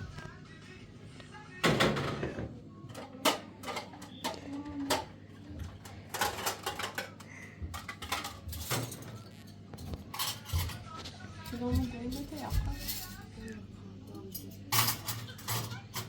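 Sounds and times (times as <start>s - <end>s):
faint voices: 0.0s - 16.0s
objects clicking and knocking: 2.9s - 10.9s.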